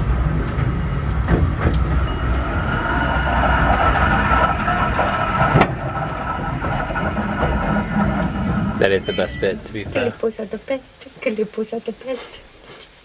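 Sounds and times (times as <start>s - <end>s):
train wheels rumbling on rails: 0.0s - 11.2s
high wheel squeal: 0.7s - 10.4s.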